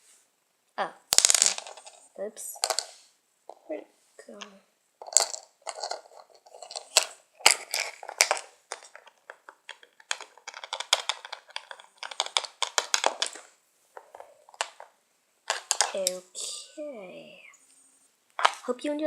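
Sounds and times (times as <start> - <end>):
plastic toy pieces clicking and rattling: 1.1 - 3.7, 4.3 - 16.4, 18.4 - 18.7.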